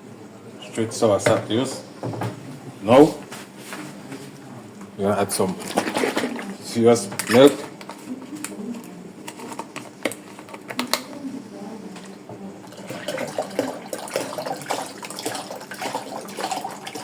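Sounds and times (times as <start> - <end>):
liquid pouring: 12.6 - 17.0.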